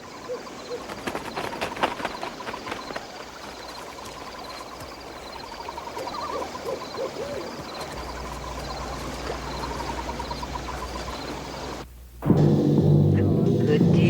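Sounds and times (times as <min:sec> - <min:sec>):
owl hooting: 0:00.0 - 0:11.8
rapid pulsed chirping: 0:00.0 - 0:11.9
low steady drone: 0:07.9 - 0:14.0.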